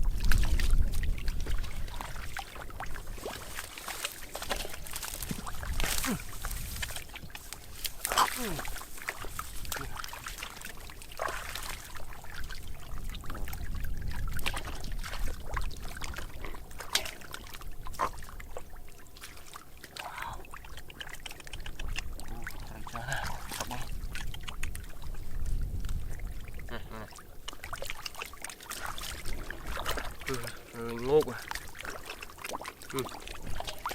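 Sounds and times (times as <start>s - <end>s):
small splashes and knocks: 0.0s - 33.9s
water pouring and trickling: 0.0s - 33.9s.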